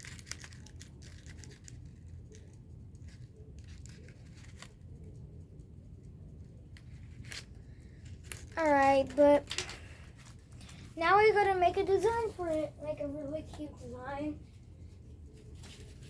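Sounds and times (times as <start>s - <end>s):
paper rustling and clicking: 0.0s - 5.2s.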